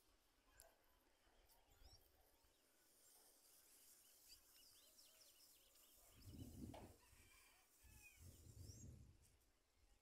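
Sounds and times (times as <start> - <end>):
faint bird chirps: 1.6 - 3.2.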